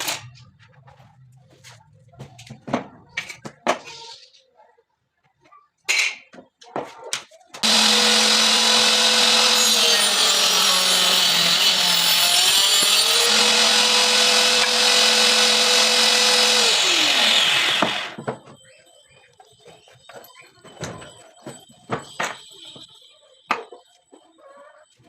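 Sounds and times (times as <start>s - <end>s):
table saw whining: 7.6s - 18.6s.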